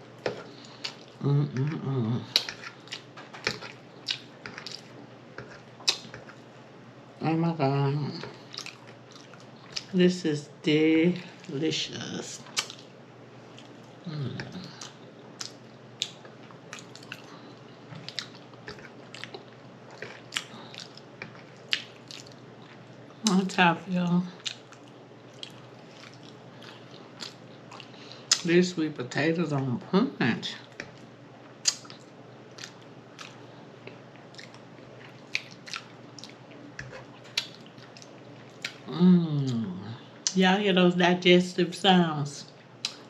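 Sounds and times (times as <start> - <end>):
person chewing food: 0.2 - 6.5, 8.2 - 9.9, 12.4 - 23.3, 24.4 - 28.4, 30.6 - 38.9.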